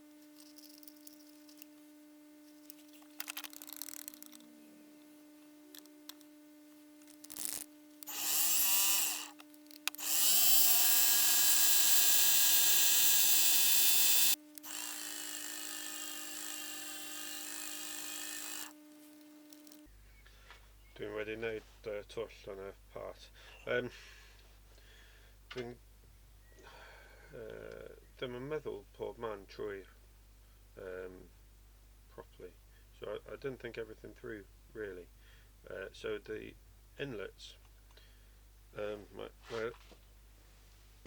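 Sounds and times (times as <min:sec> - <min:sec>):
milling machine spindle whine: 0:08.0 - 0:19.8.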